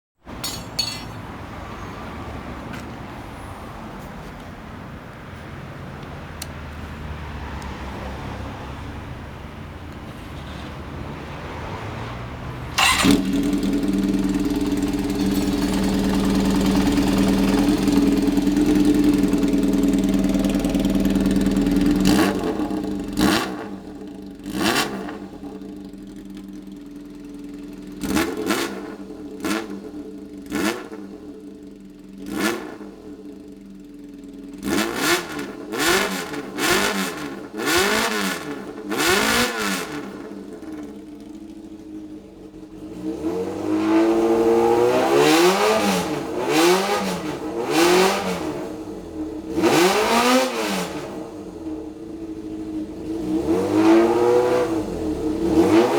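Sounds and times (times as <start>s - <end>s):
motorcycle engine revving: 11.9s - 55.9s.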